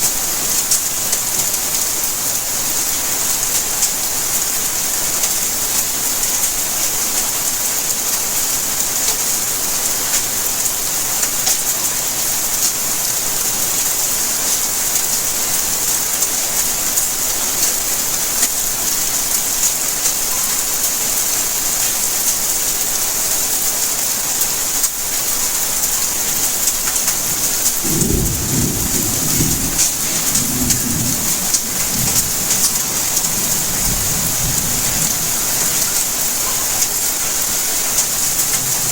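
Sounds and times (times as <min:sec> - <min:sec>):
steady rainfall: 0:00.0 - 0:38.9
low rumble of thunder: 0:27.2 - 0:37.0.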